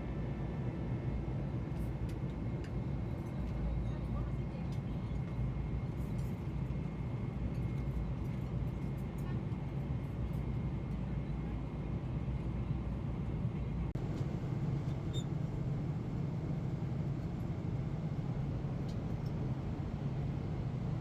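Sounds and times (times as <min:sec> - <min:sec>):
airliner cabin rumble: 0:10.8 - 0:21.0.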